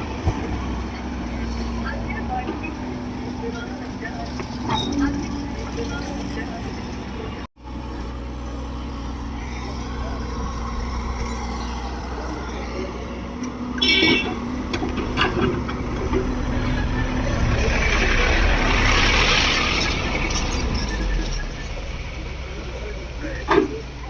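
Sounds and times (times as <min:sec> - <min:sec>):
diesel engine under load: 0:00.0 - 0:24.0
loud rush of noise: 0:16.3 - 0:22.4.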